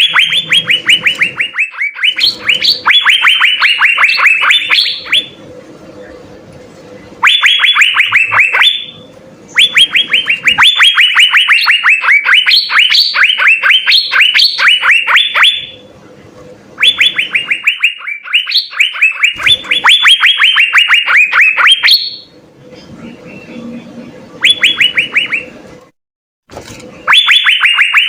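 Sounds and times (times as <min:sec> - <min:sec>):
bird singing sharp downslurred notes: 0:00.0 - 0:05.4, 0:23.0 - 0:25.6.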